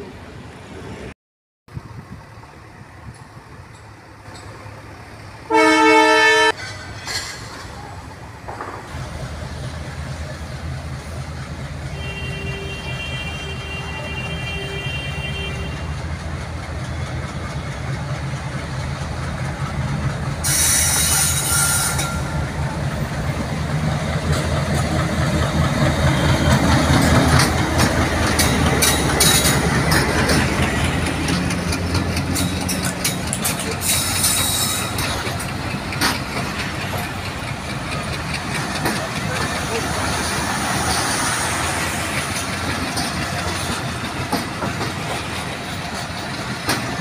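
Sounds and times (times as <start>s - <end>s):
locomotive engine drone: 1.7s - 47.0s
wheels clattering over rail joints: 6.5s - 11.7s, 15.8s - 47.0s.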